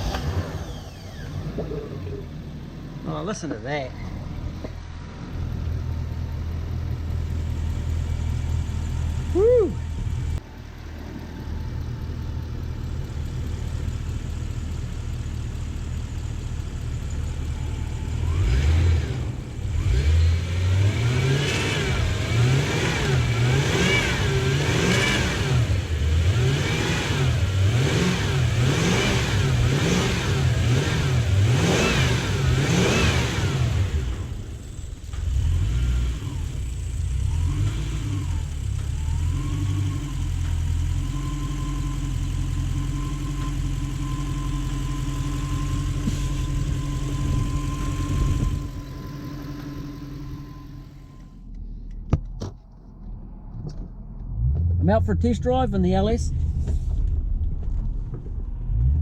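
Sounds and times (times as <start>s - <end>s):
car engine idling and revving: 0.0s - 59.0s.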